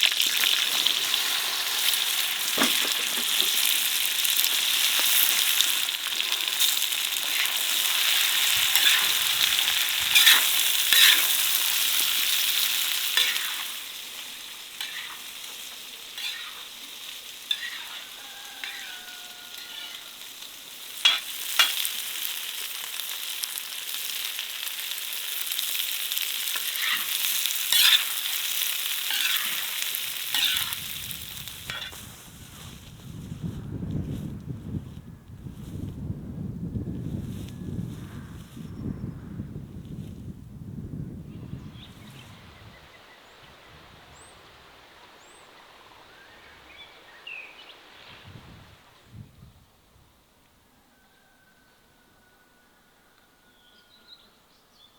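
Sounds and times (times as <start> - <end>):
food sizzling in hot oil: 0.0 - 33.3
utensil scraping a pan: 4.6 - 13.9, 14.8 - 16.8, 17.5 - 20.2, 21.0 - 21.9, 26.6 - 32.7.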